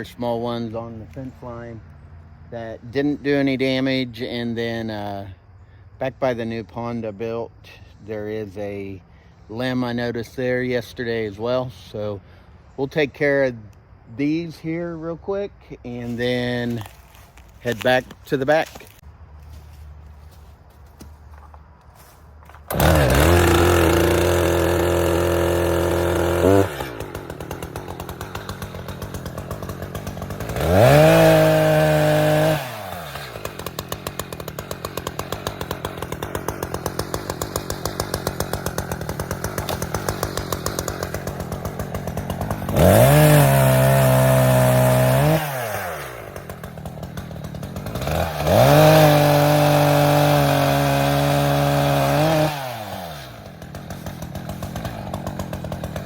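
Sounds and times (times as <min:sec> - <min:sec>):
chainsaw cutting: 0:14.5 - 0:56.0.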